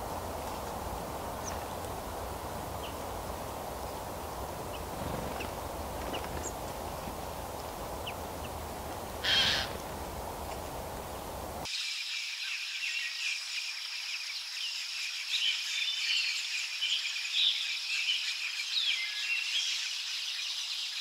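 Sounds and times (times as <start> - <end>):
forest background hiss: 0.0 - 21.0
loud harsh bird call: 9.2 - 9.8.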